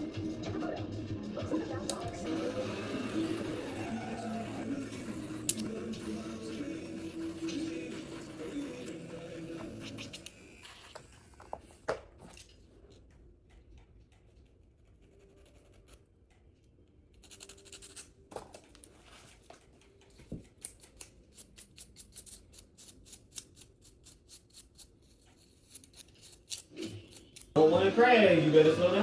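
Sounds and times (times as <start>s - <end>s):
nail file scraping fingernails: 14.2s - 16.1s, 17.1s - 18.1s, 20.5s - 27.6s.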